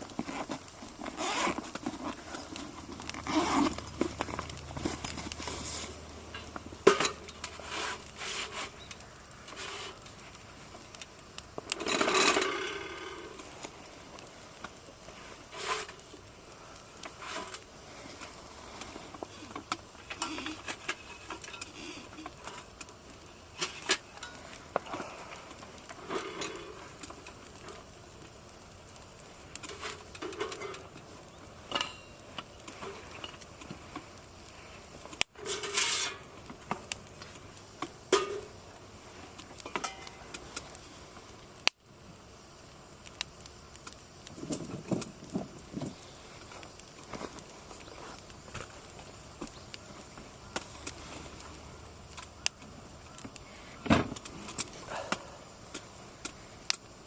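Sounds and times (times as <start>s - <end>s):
camping gear clicks and rustles: 0.0s - 40.8s, 43.1s - 57.0s.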